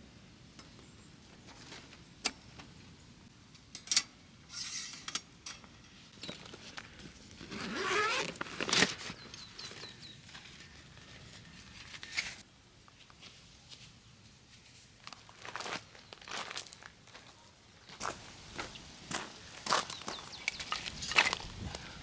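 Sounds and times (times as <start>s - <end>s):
zipper being drawn: 7.5s - 9.1s
clicks and knocks of gear handling: 20.3s - 21.5s.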